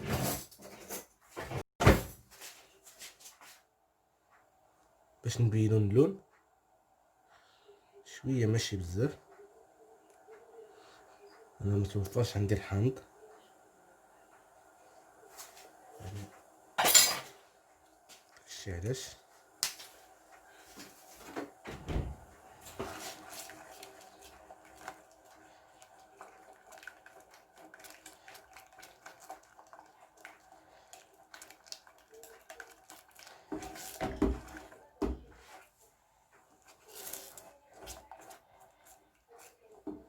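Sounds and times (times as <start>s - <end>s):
utensils clinking against pot: 16.8s - 17.4s.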